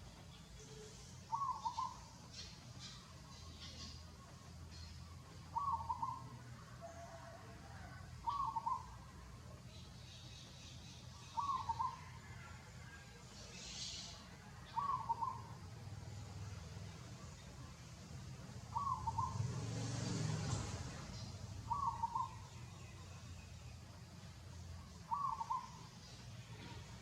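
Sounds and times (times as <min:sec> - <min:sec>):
bird hooting calls: 0:00.7 - 0:02.2, 0:05.5 - 0:09.0, 0:11.2 - 0:12.4, 0:13.7 - 0:15.5, 0:18.7 - 0:19.5, 0:21.7 - 0:22.5, 0:25.1 - 0:26.0.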